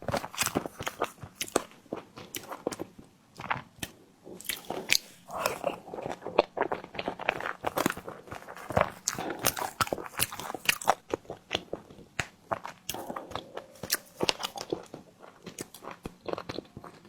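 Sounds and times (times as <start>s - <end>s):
biting and chewing: 0.0s - 17.0s
wet mouth clicks and smacks: 3.8s - 5.8s.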